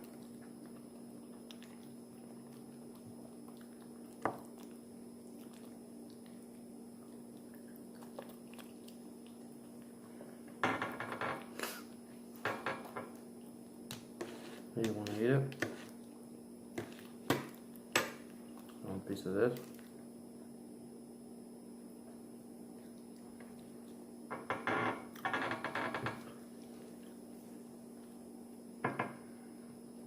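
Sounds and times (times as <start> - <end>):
biting and chewing: 0.0 - 10.2, 16.8 - 18.8
steady low hum: 0.0 - 30.0.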